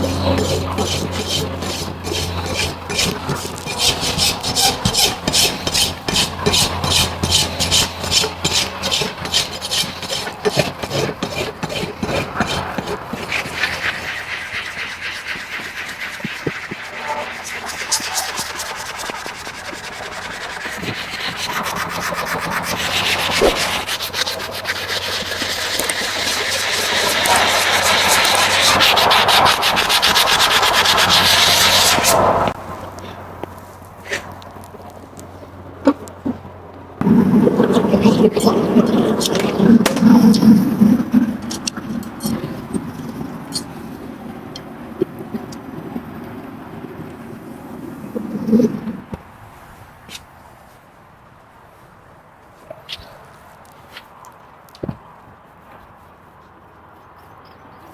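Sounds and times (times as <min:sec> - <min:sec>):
tool scraping horse hoof: 0:00.0 - 0:35.0, 0:37.0 - 0:44.0.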